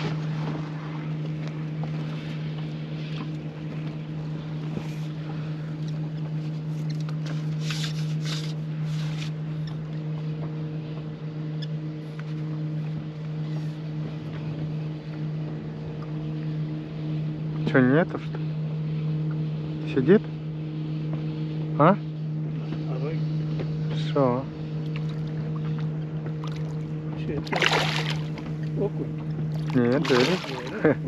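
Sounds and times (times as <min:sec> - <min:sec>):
boat motor humming: 0:00.0 - 0:31.0.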